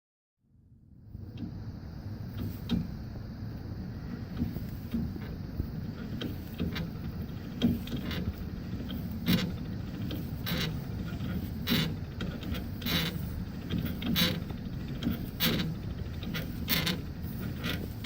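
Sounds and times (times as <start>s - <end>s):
sharp scraping click: 6.0s - 18.0s.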